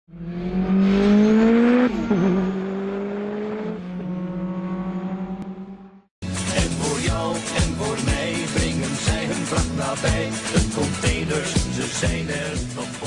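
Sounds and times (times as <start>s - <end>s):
car engine revving: 0.1s - 6.1s.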